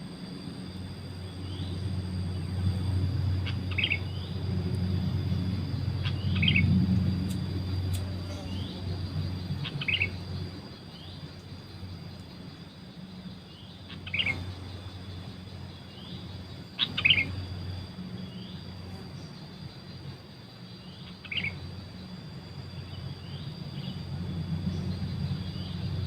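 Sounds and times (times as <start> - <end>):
low steady hum: 0.0 - 26.0
thin rising bird chirp: 0.0 - 26.0
bubbly bulbul calls: 3.4 - 4.4, 5.9 - 6.8, 8.1 - 10.4, 13.5 - 14.8, 15.9 - 17.5, 20.8 - 21.7.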